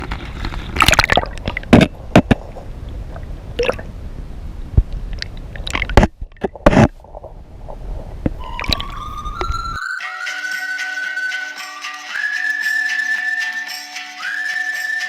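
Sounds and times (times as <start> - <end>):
water splashing and sloshing: 0.0 - 4.0, 4.8 - 9.8.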